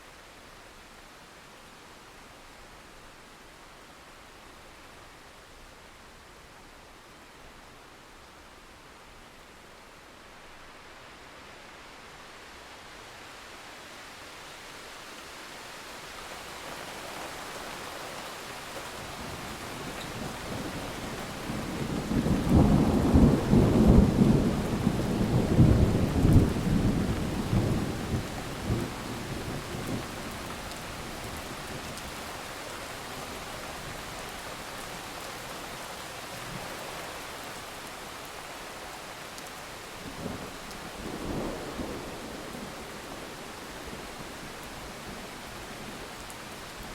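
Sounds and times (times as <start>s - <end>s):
steady rain: 0.0s - 46.9s
thunder rumbling: 19.2s - 30.4s.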